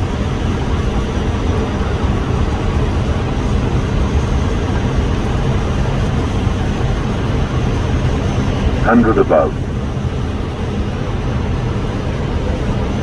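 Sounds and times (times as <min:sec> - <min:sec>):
aircraft engine rumble: 0:08.8 - 0:09.6.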